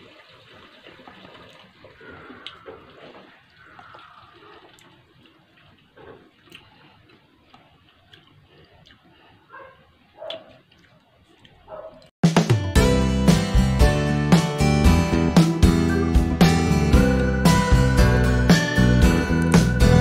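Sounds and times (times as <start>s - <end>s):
wet chewing of fruit: 1.5s - 12.1s.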